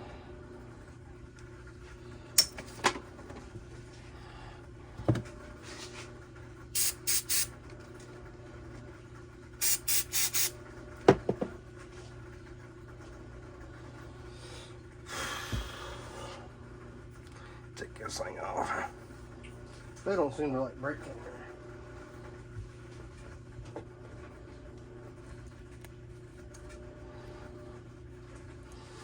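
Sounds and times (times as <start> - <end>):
steady low hum: 0.0 - 29.0
aerosol spray can hissing: 6.8 - 7.5, 9.6 - 10.5.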